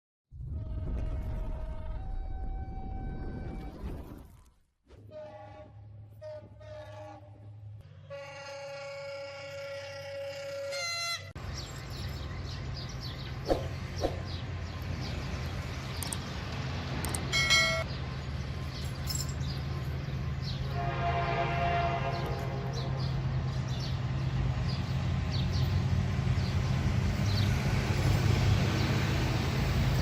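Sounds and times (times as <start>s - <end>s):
diesel locomotive horn: 4.9s - 11.4s, 20.6s - 23.3s
rail noise: 4.9s - 30.0s.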